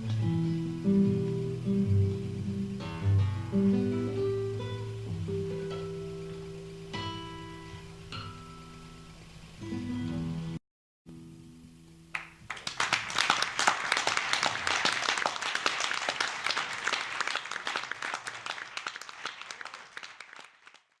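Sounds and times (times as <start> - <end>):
acoustic guitar notes ringing: 0.0 - 12.0
audience applauding: 12.1 - 21.0.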